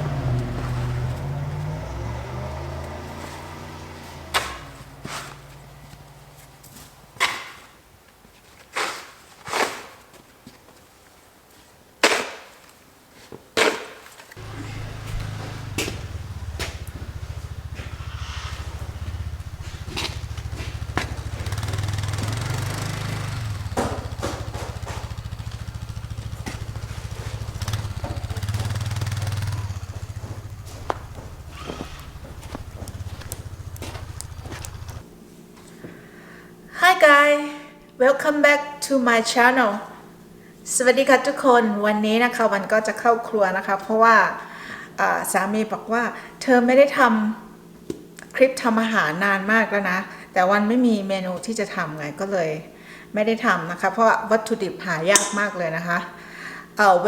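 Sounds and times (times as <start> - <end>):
engine idling: 0.0 - 7.2, 14.4 - 35.2
low hum: 14.4 - 35.3.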